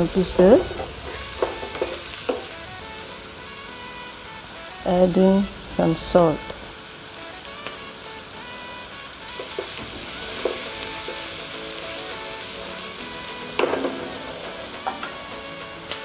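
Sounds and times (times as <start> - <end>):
onions sizzling in hot fat: 0.0 - 16.0
wooden spatula knocking on pan: 0.4 - 2.6, 9.3 - 11.3, 13.6 - 15.3.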